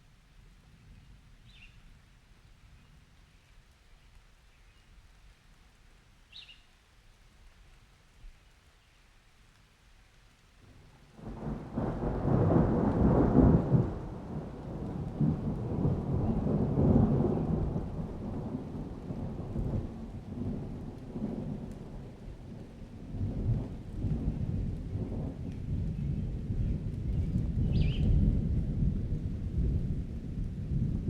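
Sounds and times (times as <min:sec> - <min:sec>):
falling rain: 0:00.0 - 0:31.0
thunder rolling: 0:11.2 - 0:31.0.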